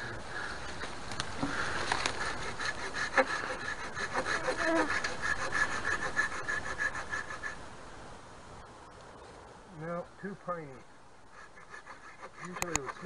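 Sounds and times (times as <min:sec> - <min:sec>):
hand saw cutting wood: 0:01.4 - 0:07.6, 0:11.4 - 0:13.0.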